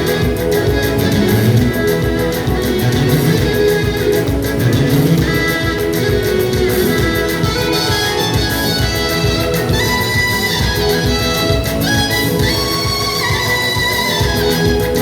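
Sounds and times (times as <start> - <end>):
instrumental music with guitar: 0.0 - 15.0
pulsing beat: 0.0 - 15.0.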